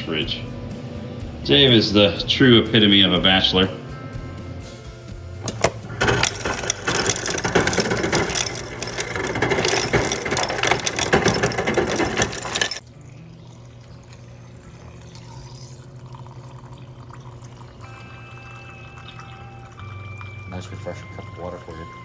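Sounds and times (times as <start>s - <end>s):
water running into a cup: 5.5s - 22.0s.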